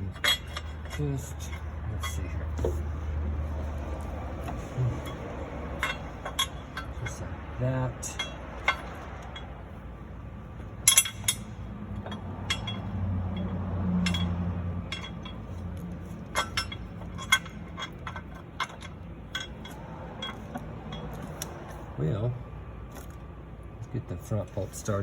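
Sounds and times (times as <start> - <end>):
metallic clinks of bolts: 4.4 - 7.2, 10.8 - 21.8.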